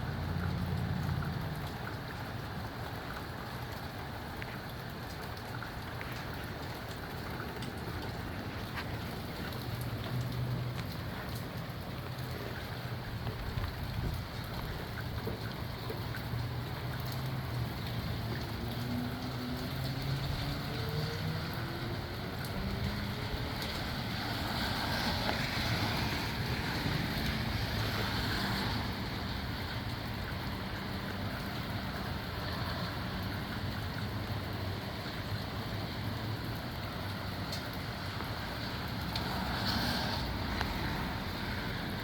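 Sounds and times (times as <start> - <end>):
rain: 0.0 - 42.0
gusty wind: 12.9 - 15.8
wind buffeting microphone: 13.1 - 15.8.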